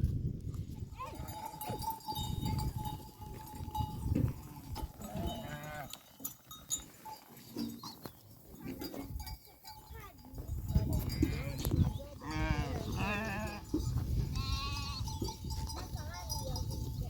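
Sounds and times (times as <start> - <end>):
livestock bells clinking: 0.5 - 17.0.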